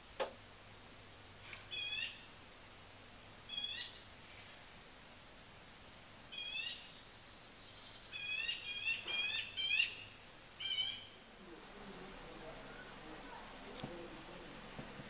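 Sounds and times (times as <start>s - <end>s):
bird calling: 1.4s - 2.3s, 3.5s - 4.0s, 6.3s - 14.3s.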